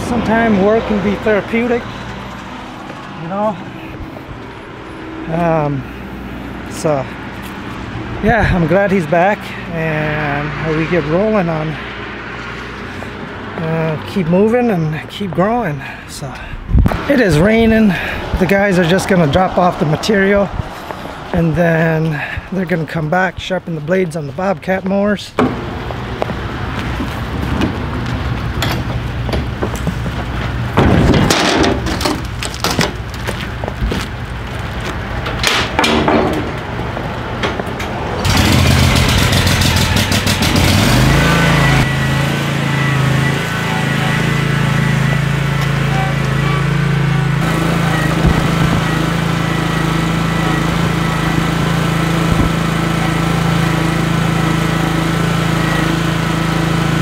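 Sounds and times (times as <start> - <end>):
engine starting and running: 25.4 - 57.0
clatter and knocks: 28.6 - 34.0.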